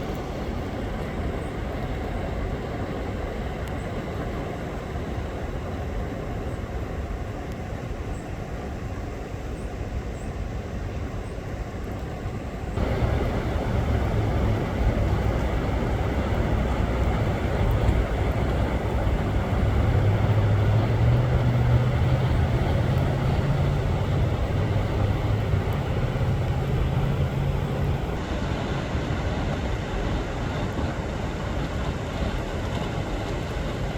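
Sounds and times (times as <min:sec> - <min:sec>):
vehicle engine running: 0:12.8 - 0:28.2
steady rushing noise: 0:12.8 - 0:33.9.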